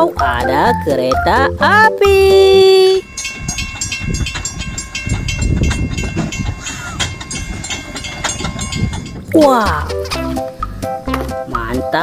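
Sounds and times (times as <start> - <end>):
train wheels clickety-clack: 3.5 - 9.2.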